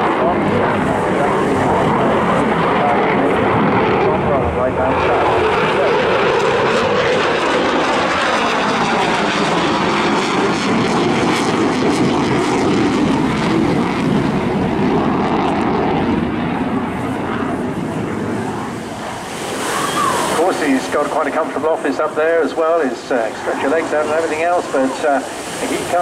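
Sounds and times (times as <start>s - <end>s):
jet fighter engine roar: 0.0s - 26.0s.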